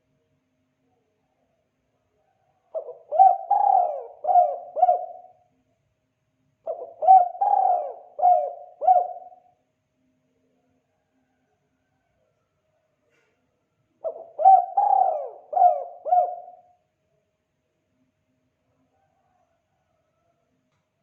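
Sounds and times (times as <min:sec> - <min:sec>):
dove cooing: 0:02.7 - 0:05.4, 0:06.6 - 0:09.5, 0:14.0 - 0:16.7.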